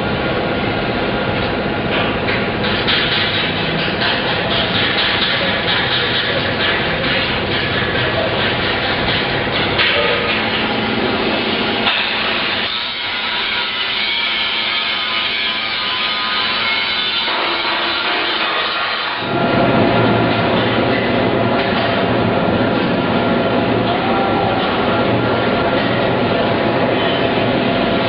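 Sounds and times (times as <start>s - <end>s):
deep heavy machine noise: 0.0s - 28.0s
machine grinding rasp: 2.6s - 19.4s.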